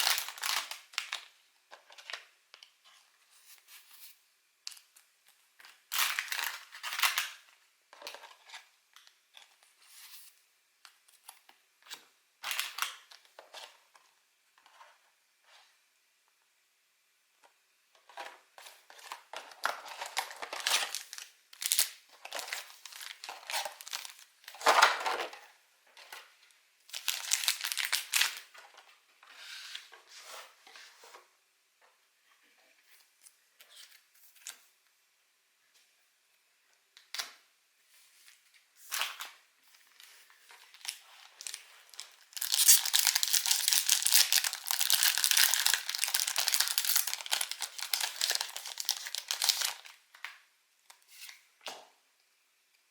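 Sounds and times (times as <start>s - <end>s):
packaging tearing and crinkling: 0.0s - 1.2s, 5.9s - 7.4s, 19.6s - 25.0s, 26.9s - 28.4s, 40.7s - 50.0s.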